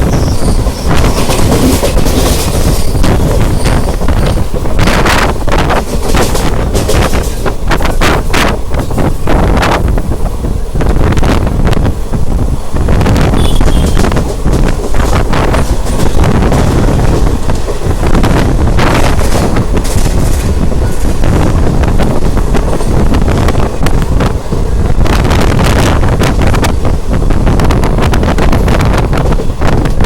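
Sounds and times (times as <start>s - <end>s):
train rumbling and clattering: 0.0s - 30.0s
wind buffeting microphone: 0.0s - 30.0s.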